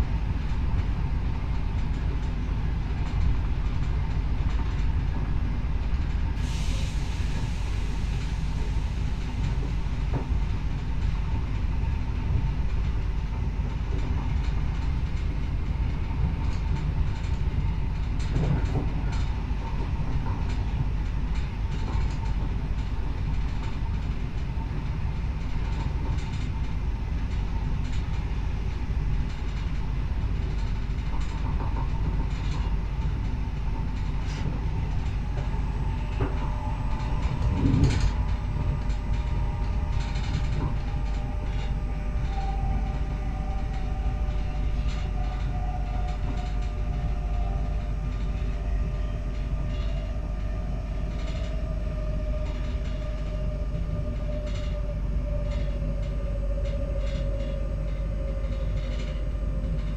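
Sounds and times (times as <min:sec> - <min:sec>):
rail joint clicks: 0:00.0 - 0:59.9
train wheels rumbling on track: 0:00.0 - 0:59.9
train motor whine: 0:33.8 - 0:59.9.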